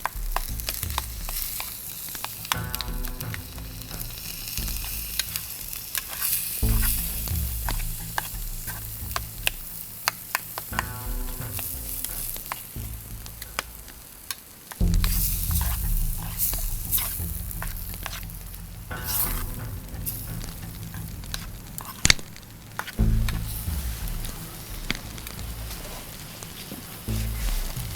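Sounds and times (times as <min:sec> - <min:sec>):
food sizzling in a pan: 0:01.3 - 0:12.9.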